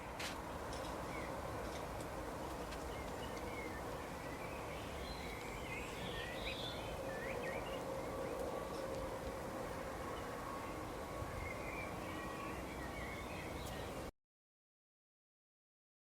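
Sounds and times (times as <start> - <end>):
small songbirds chirping: 0.0 - 14.1.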